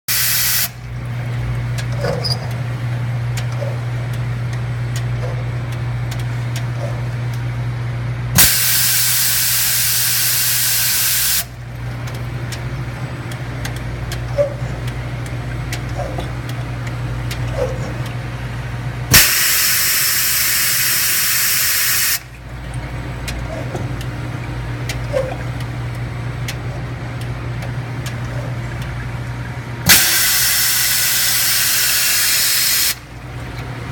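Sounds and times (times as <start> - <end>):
washing machine humming: 0.1 - 33.9
loud hissing spray bursts: 8.4 - 11.5, 19.1 - 22.2, 29.9 - 33.0.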